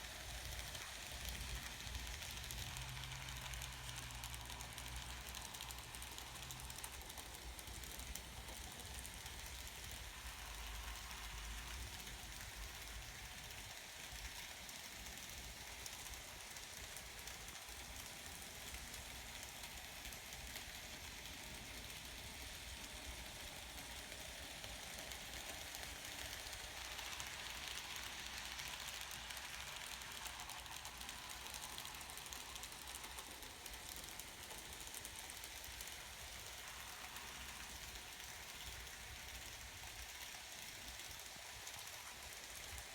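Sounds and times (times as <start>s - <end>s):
model train whirring: 0.0s - 42.9s
small wheels clicking over rails: 0.0s - 42.9s.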